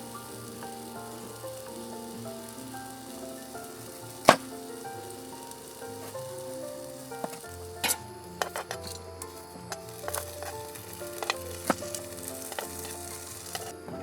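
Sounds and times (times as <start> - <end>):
food sizzling in a pan: 0.0 - 14.0
soft background music: 0.0 - 14.0
utensils clicking and scraping: 0.0 - 14.0.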